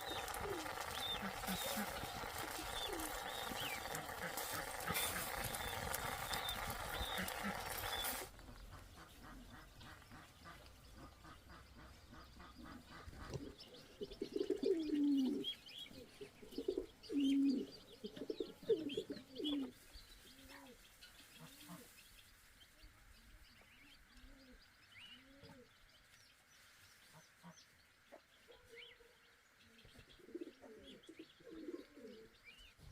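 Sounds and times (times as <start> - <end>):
low cooing bird calls: 0.0 - 22.0, 23.8 - 25.9, 28.5 - 32.9.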